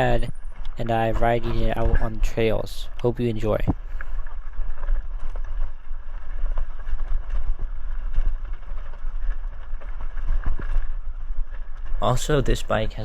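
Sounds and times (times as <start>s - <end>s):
wind rumbling on microphone: 0.0s - 13.0s
small clicks and rattles: 3.4s - 13.0s.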